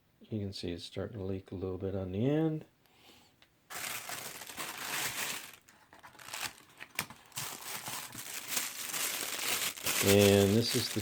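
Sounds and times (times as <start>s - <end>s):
packaging crinkling: 3.7s - 11.0s.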